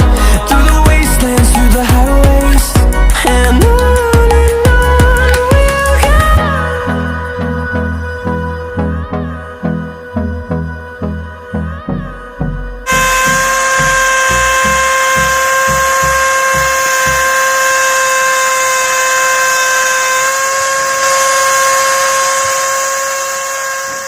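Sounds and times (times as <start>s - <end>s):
background music with a beat: 0.0s - 17.5s
small electric motor whining: 12.9s - 24.0s.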